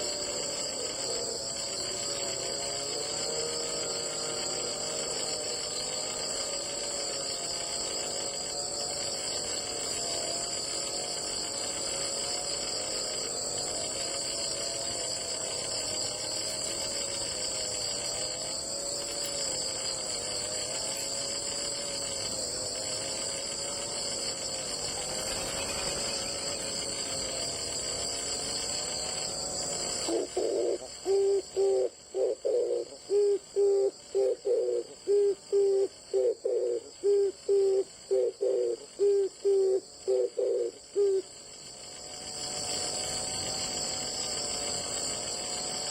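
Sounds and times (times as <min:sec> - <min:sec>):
insects chirring: 0:00.0 - 0:45.9
dove cooing: 0:30.0 - 0:41.2.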